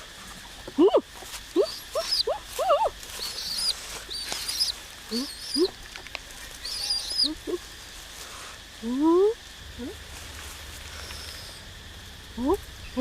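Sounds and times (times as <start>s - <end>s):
birds calling: 0.5s - 7.7s, 9.7s - 13.0s
high thin bird chirps: 1.6s - 5.8s, 6.6s - 7.6s, 10.9s - 11.6s.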